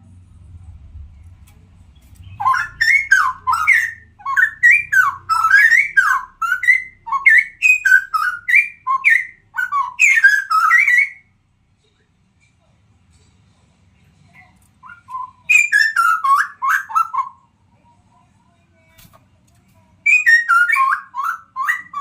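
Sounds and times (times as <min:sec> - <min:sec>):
bird singing whistled notes: 0:02.0 - 0:11.3, 0:14.8 - 0:17.4, 0:20.1 - 0:22.0.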